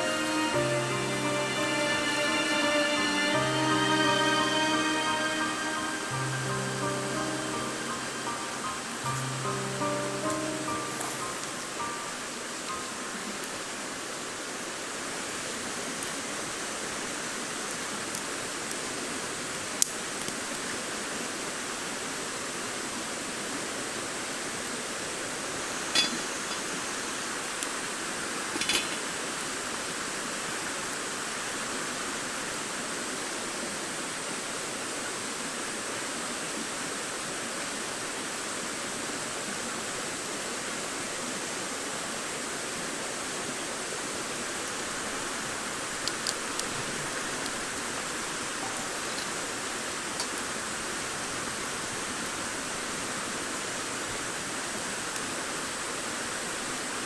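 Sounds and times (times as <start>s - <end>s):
campfire hissing: 0.0s - 57.0s
campfire crackling pops: 19.8s - 20.4s, 46.0s - 47.6s.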